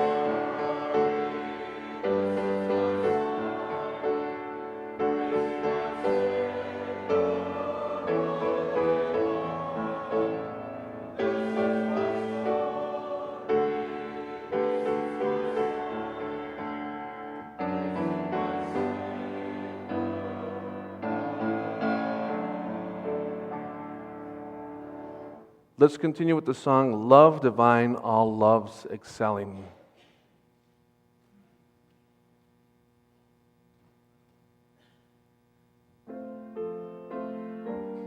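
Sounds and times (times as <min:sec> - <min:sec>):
piano playing a slow hymn: 0:00.0 - 0:25.6, 0:36.1 - 0:38.0.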